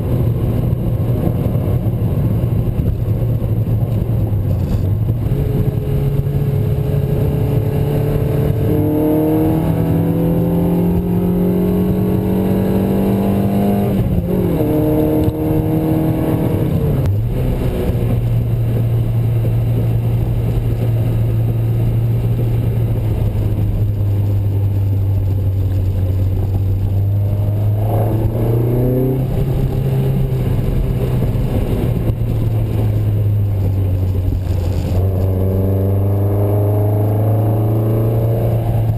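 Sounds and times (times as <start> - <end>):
car engine accelerating: 0.0 - 38.9
gear changes: 13.8 - 38.9.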